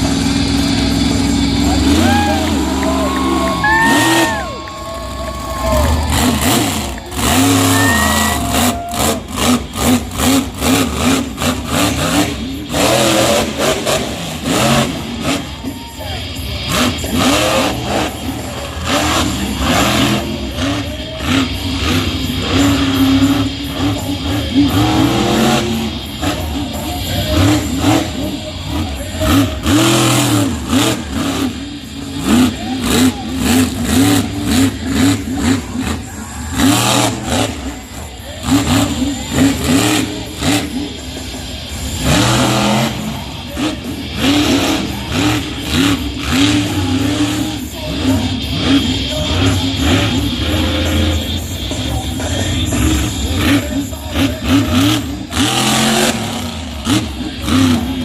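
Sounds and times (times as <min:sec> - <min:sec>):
truck engine revving hard: 0:00.0 - 0:58.0
music over loudspeakers: 0:32.3 - 0:58.0.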